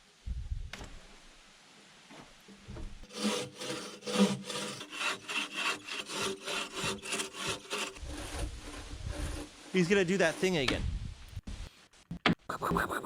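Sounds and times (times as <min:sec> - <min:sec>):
hand saw cutting wood: 0:03.0 - 0:10.7.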